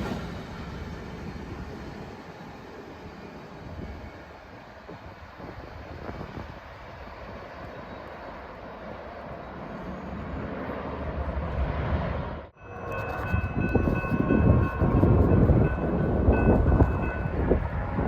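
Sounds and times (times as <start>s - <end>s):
train rumbling past: 0.0s - 18.0s
train wheel squeals: 12.6s - 18.0s.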